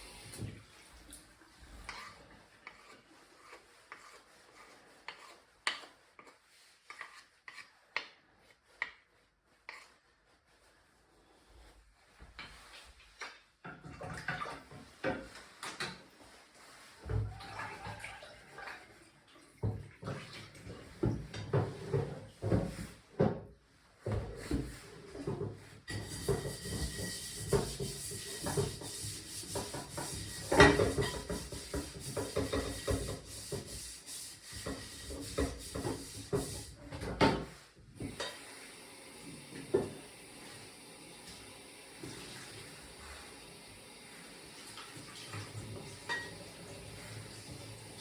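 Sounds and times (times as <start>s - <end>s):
pots and dishes clattering: 29.5s - 33.2s, 45.4s - 46.5s.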